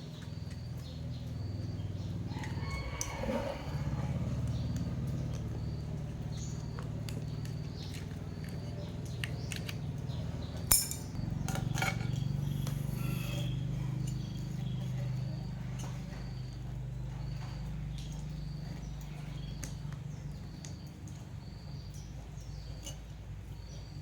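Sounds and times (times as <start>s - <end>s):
birds chirping: 0.0s - 24.0s
light metallic clinks: 7.4s - 16.6s.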